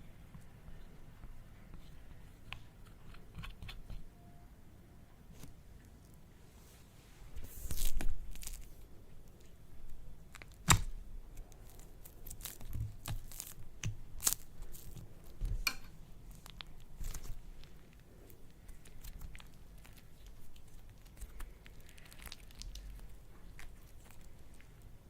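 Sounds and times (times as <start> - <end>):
slime crackling and popping: 7.6 - 8.7, 10.2 - 25.0.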